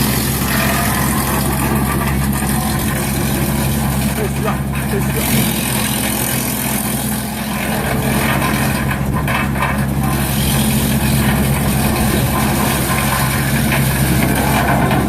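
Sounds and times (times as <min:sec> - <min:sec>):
tractor engine running: 0:00.0 - 0:15.0
wood chipper machine noise: 0:00.0 - 0:15.0.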